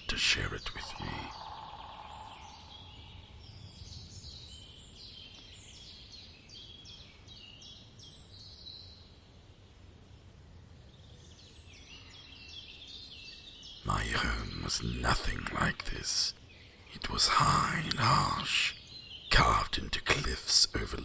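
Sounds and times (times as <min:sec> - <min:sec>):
birds chirping: 0:00.0 - 0:04.4, 0:13.6 - 0:21.0.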